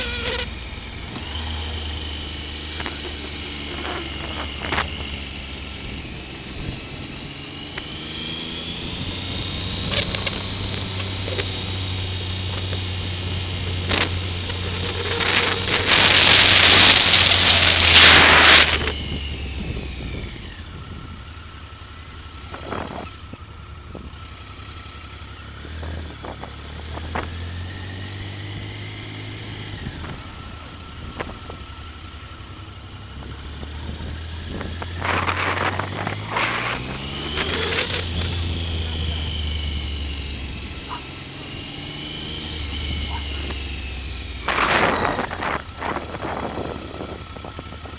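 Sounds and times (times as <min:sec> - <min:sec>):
motorcycle engine running: 0:00.0 - 0:47.9
wind noise on microphone: 0:14.7 - 0:21.2, 0:33.2 - 0:38.6, 0:42.6 - 0:47.9.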